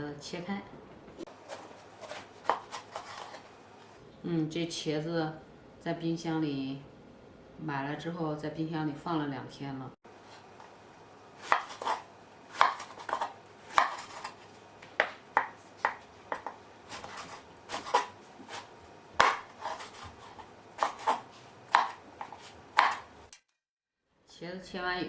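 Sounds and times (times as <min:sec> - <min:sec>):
knife slicing on cutting board: 0:01.3 - 0:03.5, 0:11.4 - 0:14.4, 0:15.0 - 0:23.2.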